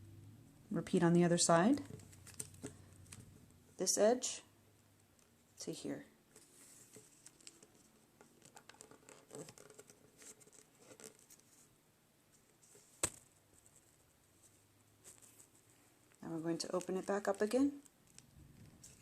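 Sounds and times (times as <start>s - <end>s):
paper rustling and scraping: 6.4s - 11.7s, 18.0s - 19.0s.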